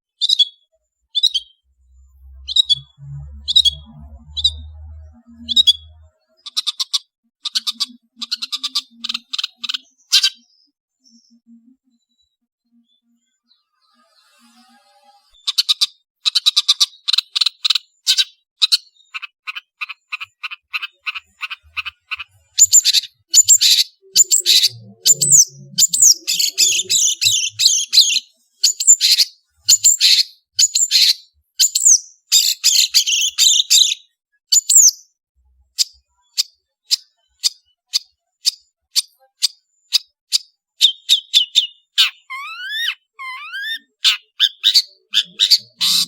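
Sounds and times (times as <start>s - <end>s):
bird singing chattering notes: 1.2s - 11.6s, 15.4s - 35.0s, 35.8s - 46.0s
bird high whistles: 40.8s - 46.0s.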